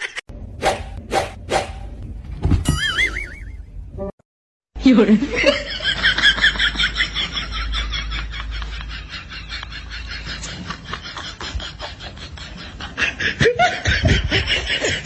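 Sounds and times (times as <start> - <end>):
people laughing: 5.0 - 15.0.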